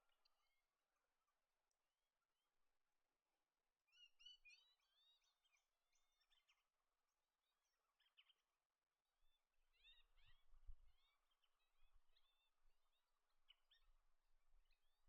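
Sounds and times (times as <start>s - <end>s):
faint bird chirping: 3.9s - 15.0s.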